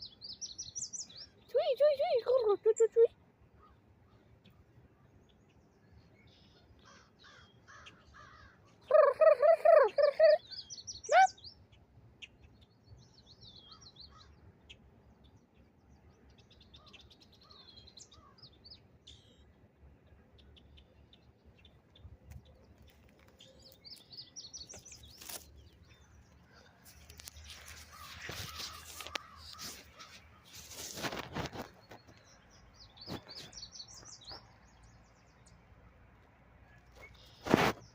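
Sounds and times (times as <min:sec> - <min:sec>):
harsh repeated bird calls: 0:06.8 - 0:11.4, 0:26.5 - 0:31.7.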